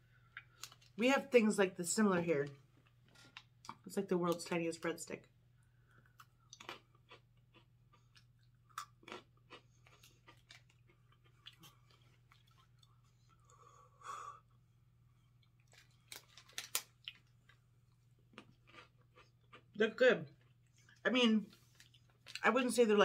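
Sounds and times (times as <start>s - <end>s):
crunching and chewing breadsticks: 0.3s - 1.0s, 5.9s - 13.6s, 15.2s - 19.8s, 21.6s - 22.5s.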